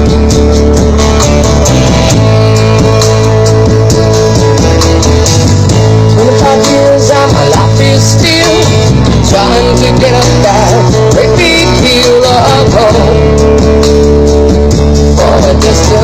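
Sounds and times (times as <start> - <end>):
loud music with heavy bass: 0.0 - 16.0
sung melody: 0.0 - 16.0.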